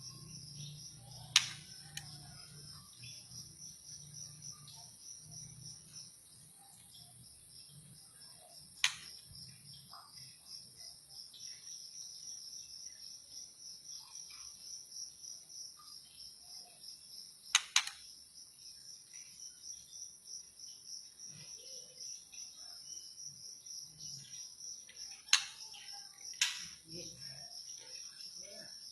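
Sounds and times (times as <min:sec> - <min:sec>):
insect chirring: 0:00.0 - 0:28.9
sharp clicks: 0:01.3 - 0:02.2, 0:08.8 - 0:09.2, 0:17.6 - 0:18.0, 0:25.3 - 0:25.6, 0:26.3 - 0:26.8.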